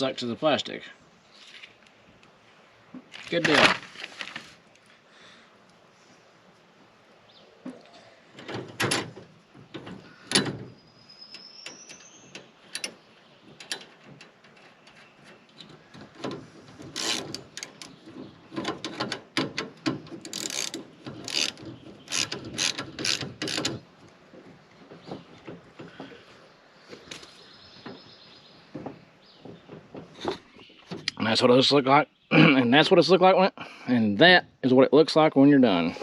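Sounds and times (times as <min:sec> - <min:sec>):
ratchet wrench clicking on metal: 0:17.0 - 0:17.7, 0:20.2 - 0:23.8.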